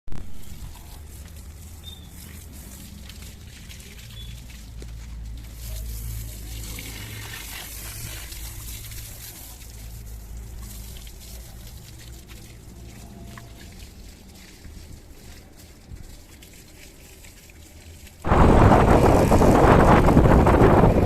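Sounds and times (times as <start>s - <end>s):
water spraying and splashing: 0.1s - 21.0s
low motor hum: 18.2s - 21.0s.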